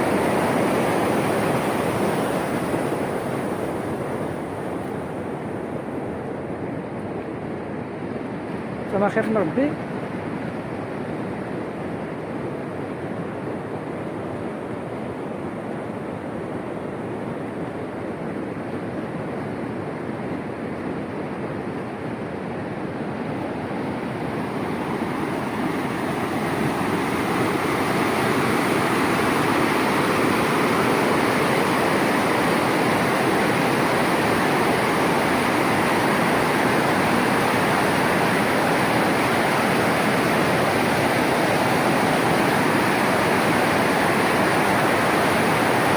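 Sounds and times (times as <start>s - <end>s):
floodwater rushing: 0.0s - 4.8s, 23.5s - 45.9s.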